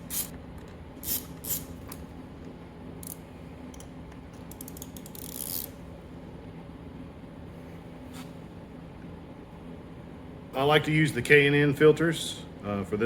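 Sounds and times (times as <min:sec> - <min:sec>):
steady low hum: 0:00.0 - 0:13.0
ratchet clicking: 0:04.5 - 0:05.7.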